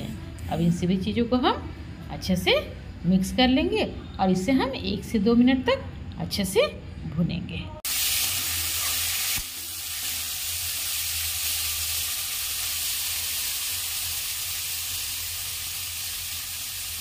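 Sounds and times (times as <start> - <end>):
food sizzling in hot oil: 7.8 - 17.0.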